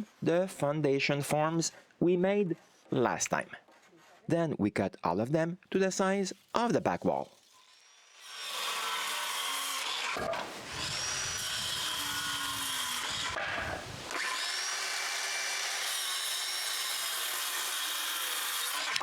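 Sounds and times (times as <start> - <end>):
power saw cutting wood: 7.2 - 19.0.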